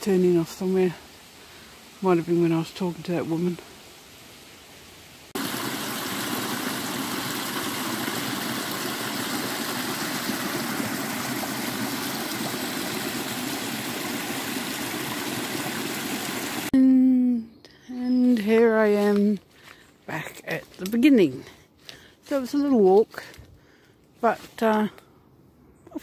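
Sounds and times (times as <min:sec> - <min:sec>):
stream water rushing: 0:05.3 - 0:16.7.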